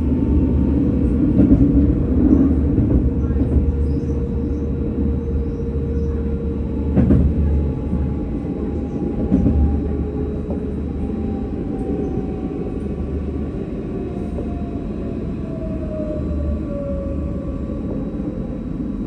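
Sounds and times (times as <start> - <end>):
tram rumbling on rails: 0.0 - 19.0.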